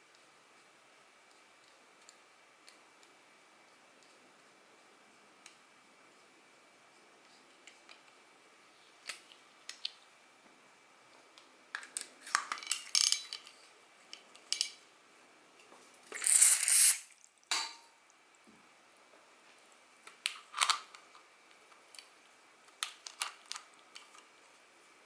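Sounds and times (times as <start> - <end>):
fishing reel parts clicking: 16.2 - 17.0.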